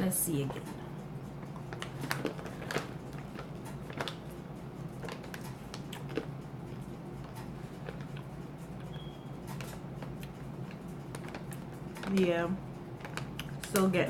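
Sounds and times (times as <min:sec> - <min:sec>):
steady low hum: 0:00.0 - 0:14.0
crunchy chewing: 0:01.5 - 0:12.2.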